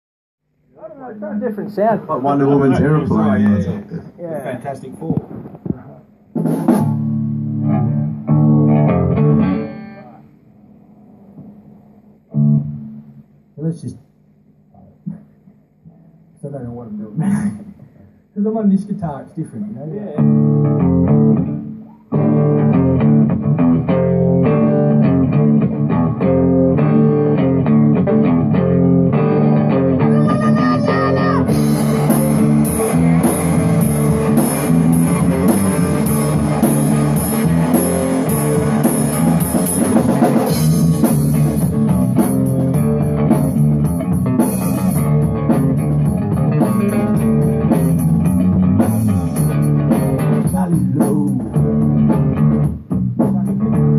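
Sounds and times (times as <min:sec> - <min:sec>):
drum kit and cymbals: 0:05.0 - 0:07.8, 0:30.2 - 0:53.9
guitar and bass riff: 0:06.4 - 0:13.6, 0:20.0 - 0:53.9.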